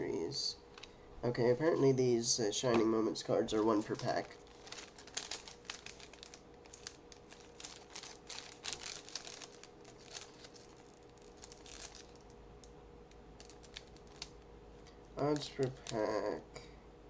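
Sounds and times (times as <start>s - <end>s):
low steady hum: 0.0s - 17.0s
wrapper crinkling and rustling: 2.6s - 14.5s, 15.2s - 16.4s.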